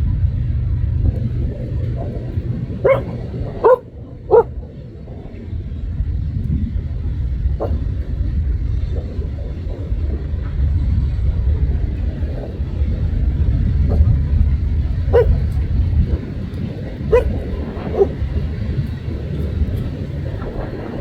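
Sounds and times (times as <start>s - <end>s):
steady low rumble: 0.0s - 21.0s
dog barking: 1.9s - 4.6s, 7.6s - 7.9s, 15.1s - 15.6s, 17.0s - 18.5s.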